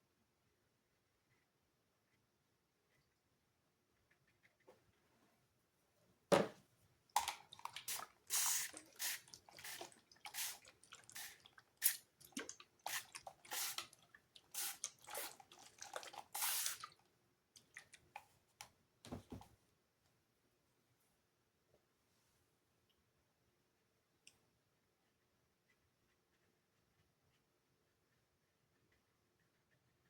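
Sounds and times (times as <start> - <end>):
dull thump: 6.3 - 6.6
paintbrush scrubbing strokes: 7.7 - 12.0.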